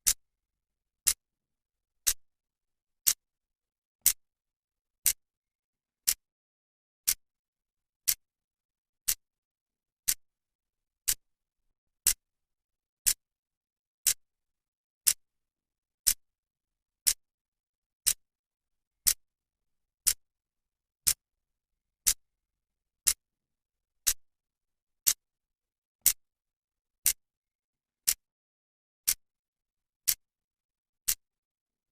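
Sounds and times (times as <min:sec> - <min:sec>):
clock ticking: 0:06.0 - 0:06.2, 0:10.0 - 0:10.2, 0:28.0 - 0:28.2.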